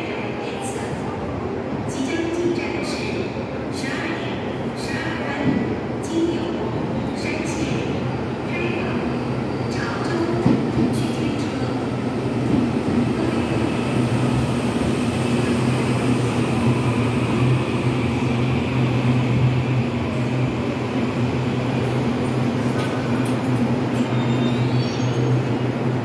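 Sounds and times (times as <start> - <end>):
electric train slowing to a stop: 12.4 - 26.0.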